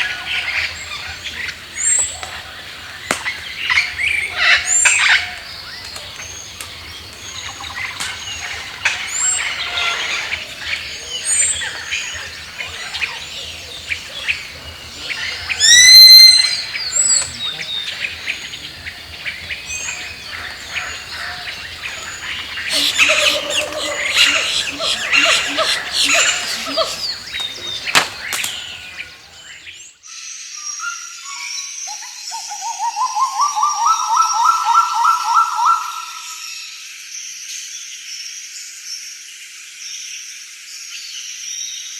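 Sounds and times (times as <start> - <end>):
rising whistled bird notes: 0.0 - 29.7
rapid trilled bird call: 0.0 - 29.8
birds calling and chirping: 0.0 - 29.9.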